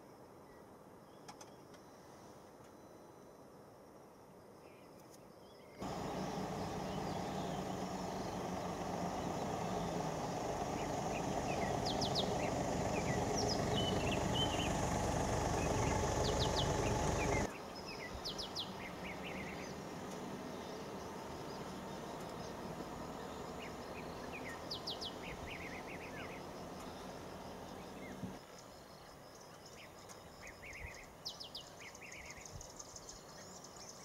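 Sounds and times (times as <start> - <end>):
birds chirping: 5.6 - 34.0
loud low rumble: 5.8 - 17.5.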